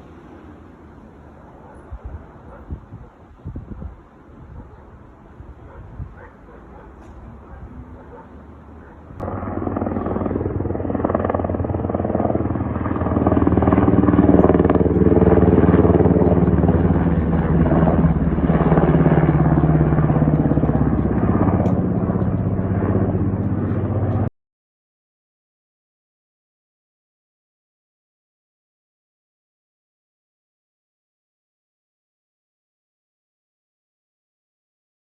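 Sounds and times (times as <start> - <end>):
aircraft engine drone: 0.0 - 2.6, 4.0 - 24.3.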